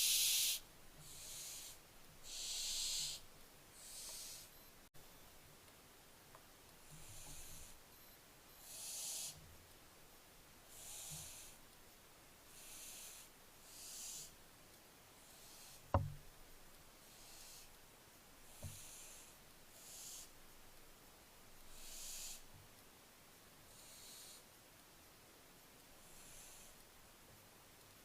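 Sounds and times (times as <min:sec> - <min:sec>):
owl chicks hissing begging calls: 0:00.0 - 0:04.5, 0:06.9 - 0:07.8, 0:08.6 - 0:09.4, 0:10.7 - 0:11.6, 0:12.5 - 0:14.4, 0:15.2 - 0:16.0, 0:17.0 - 0:17.7, 0:18.5 - 0:20.4, 0:21.7 - 0:22.5, 0:23.7 - 0:24.5, 0:26.0 - 0:26.8
sharp knock: 0:15.9 - 0:16.2.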